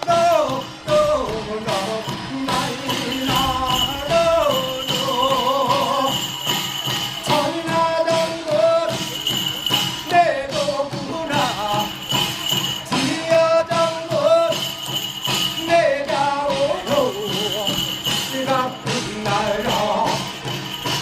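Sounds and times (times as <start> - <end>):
bells jingling: 0.0 - 21.0
steady drumming: 0.0 - 21.0.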